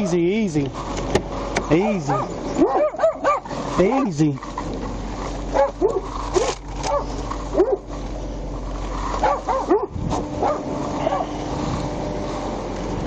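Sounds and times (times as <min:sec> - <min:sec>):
steady low hum: 0:00.0 - 0:13.0
dog whining: 0:09.2 - 0:11.4.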